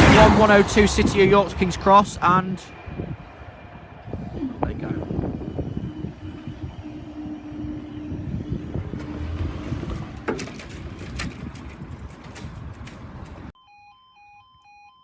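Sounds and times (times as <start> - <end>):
train wheels rumbling on rail: 0.0 - 13.5
sharp clicks of wheels: 8.9 - 13.5.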